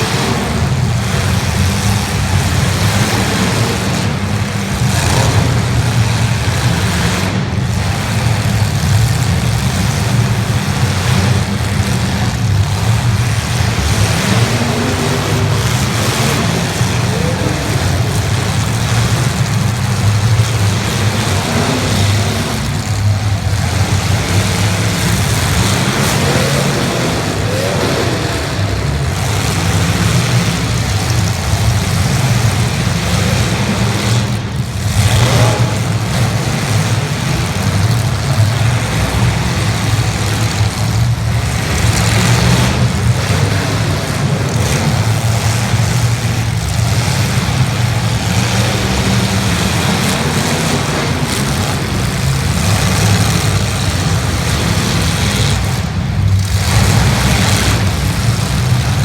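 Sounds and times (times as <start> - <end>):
car engines revving hard: 0.0 - 59.0.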